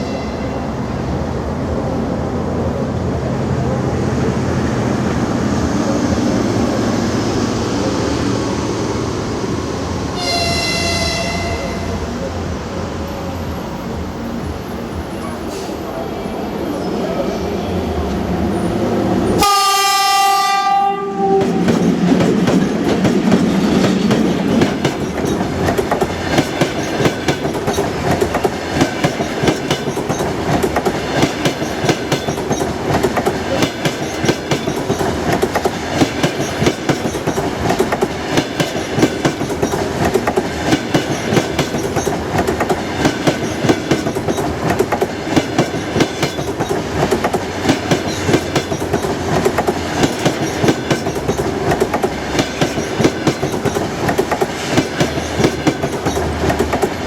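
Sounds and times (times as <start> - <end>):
locomotive horn blast: 10.2 - 12.1, 19.4 - 21.6
train wheels clattering over rails: 21.2 - 57.0.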